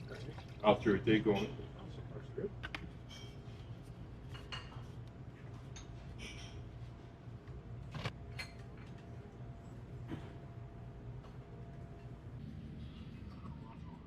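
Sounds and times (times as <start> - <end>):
ventilation hum: 0.0 - 14.0
dishes and cutlery clinking: 1.1 - 1.8, 3.0 - 5.0, 5.6 - 6.9, 8.2 - 9.1.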